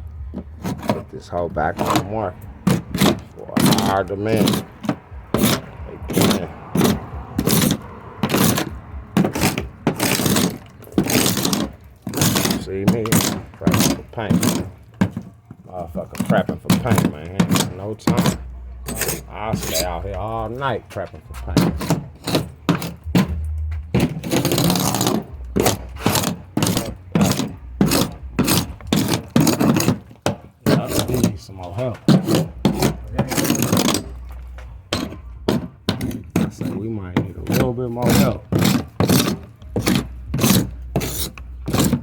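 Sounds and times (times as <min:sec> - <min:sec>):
paint scraper scraping a surface: 0:00.0 - 0:42.0.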